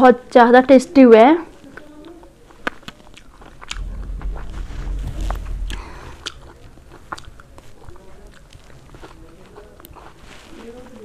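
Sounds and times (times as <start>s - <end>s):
wet chewing: 1.6s - 4.5s, 5.7s - 11.0s
low rumble: 3.7s - 8.1s.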